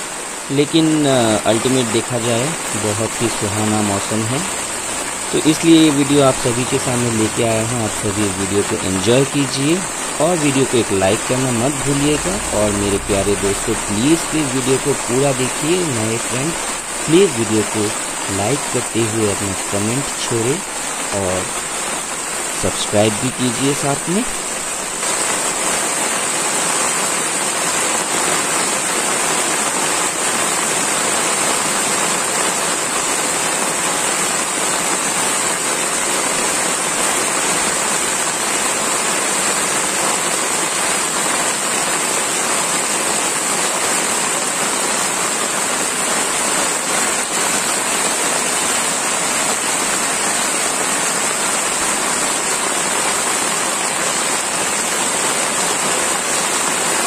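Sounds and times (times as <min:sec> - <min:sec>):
heavy rain falling: 0:00.0 - 0:57.0
high-pitched hiss: 0:00.5 - 0:25.1.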